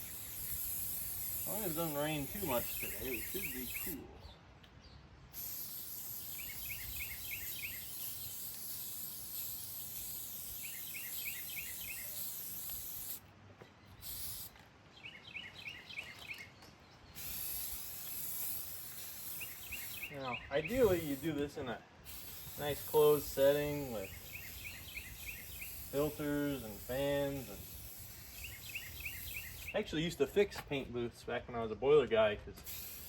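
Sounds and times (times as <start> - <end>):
aerosol spray can hissing: 0.0 - 4.0, 5.4 - 13.2, 14.0 - 14.6, 17.2 - 21.4, 22.0 - 29.8, 32.6 - 33.0
bird chirping: 0.0 - 5.1, 6.1 - 8.4, 9.4 - 12.5, 13.6 - 18.2, 18.9 - 21.3, 22.3 - 29.9.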